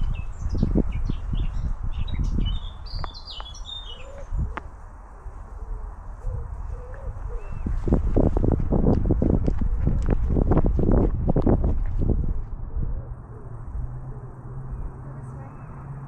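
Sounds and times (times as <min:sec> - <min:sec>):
lower bird call: 0:00.0 - 0:04.7, 0:05.6 - 0:07.8
small birds chirping: 0:00.0 - 0:07.8, 0:14.2 - 0:16.0
walking thumps and rumble: 0:06.2 - 0:13.0.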